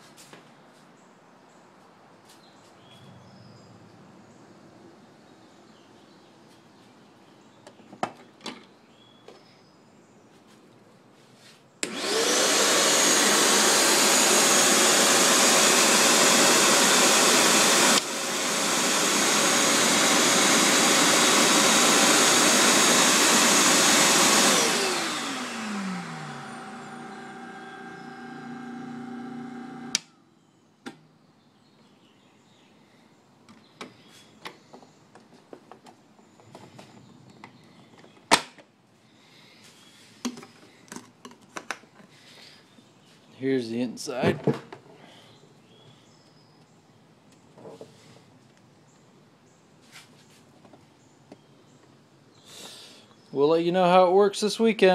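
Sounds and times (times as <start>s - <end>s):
glass grinder motor whining: 11.8s - 30.1s
small clicks and knocks: 40.2s - 42.1s.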